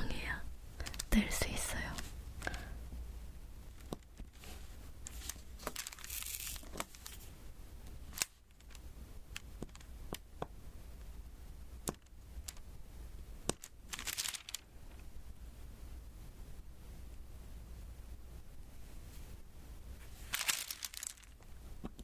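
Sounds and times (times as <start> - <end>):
rustling peeling noise: 3.7 - 7.4, 13.5 - 14.7, 20.0 - 21.5.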